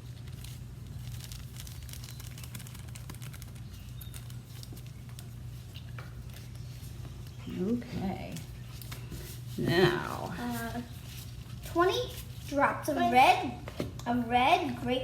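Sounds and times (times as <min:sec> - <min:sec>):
powder bag shaken and tapped: 0:00.0 - 0:06.5
steady low hum: 0:00.0 - 0:15.0.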